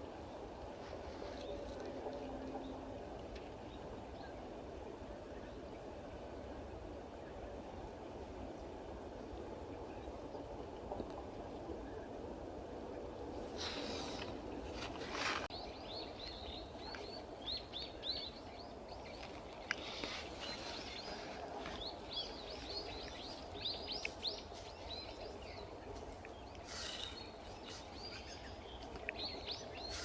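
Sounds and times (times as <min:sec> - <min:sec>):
outdoor background noise: 0:00.0 - 0:30.0
small birds chirping: 0:15.0 - 0:30.0.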